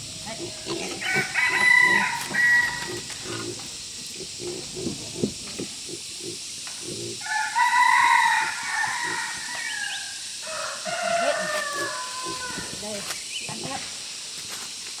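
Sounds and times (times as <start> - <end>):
rooster crowing: 1.0 - 3.1, 7.2 - 12.8.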